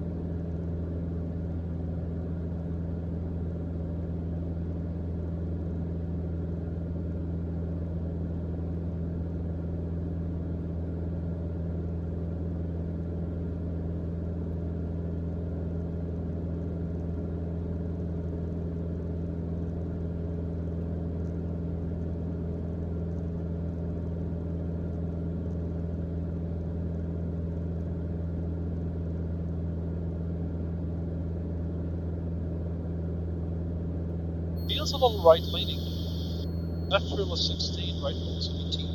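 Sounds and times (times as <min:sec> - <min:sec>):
airplane engine and propeller drone: 0:34.6 - 0:38.9.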